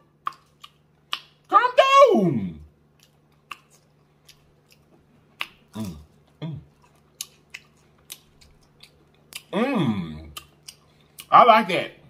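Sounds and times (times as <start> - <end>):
crunchy chewing: 0.1 - 1.5, 2.9 - 9.6
person humming mm: 5.8 - 6.7, 9.6 - 10.4.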